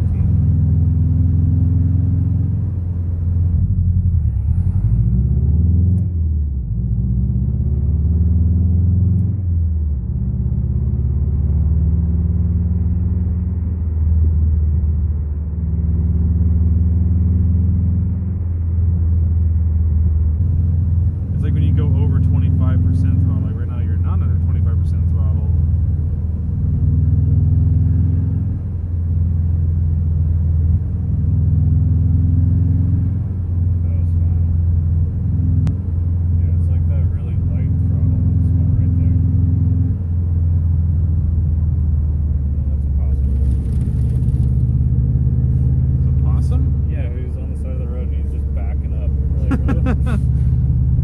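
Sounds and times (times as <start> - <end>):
car engine droning: 0.0 - 51.0
road noise: 0.0 - 51.0.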